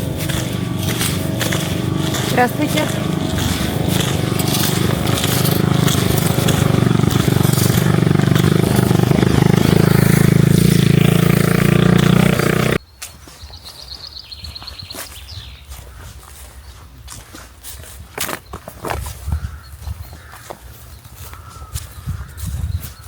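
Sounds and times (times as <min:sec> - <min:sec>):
motor engine running: 0:00.0 - 0:12.8.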